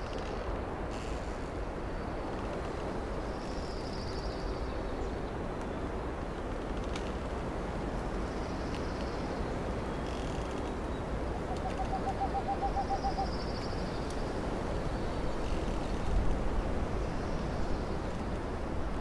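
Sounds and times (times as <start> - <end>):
bird calling rapid low notes: 11.4 - 13.3
songbird high trill: 11.4 - 13.6.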